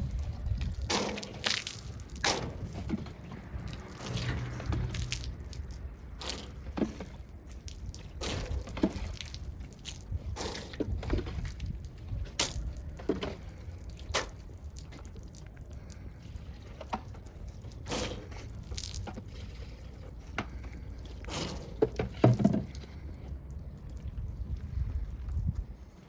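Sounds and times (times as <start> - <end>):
low steady rumble: 0.0 - 26.0
water splashing and dripping: 0.1 - 26.0.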